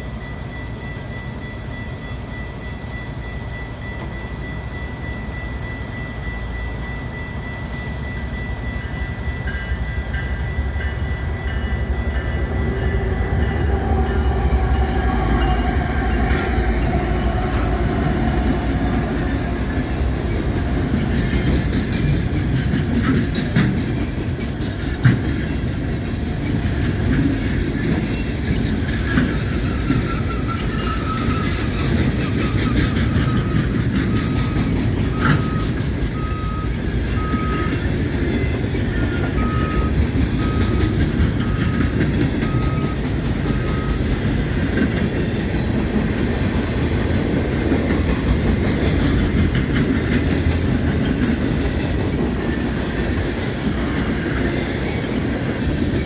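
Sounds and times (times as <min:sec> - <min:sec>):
freight train rumbling: 0:00.0 - 0:56.0
wheels clattering over rail joints: 0:12.2 - 0:56.0.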